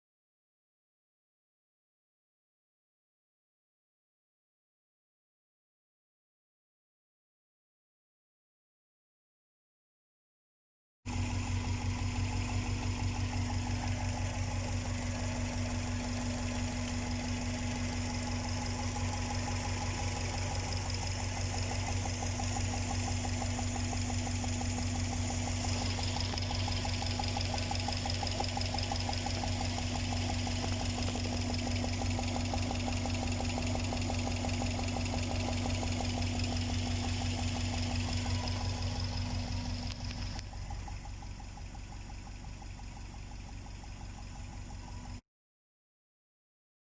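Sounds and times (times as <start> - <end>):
car engine idling: 11.1 - 45.2
fast even engine tapping: 14.4 - 42.4.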